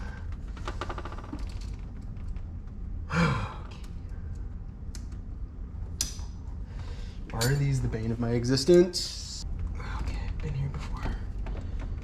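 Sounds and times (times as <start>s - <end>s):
man sighing and groaning: 3.1s - 3.8s.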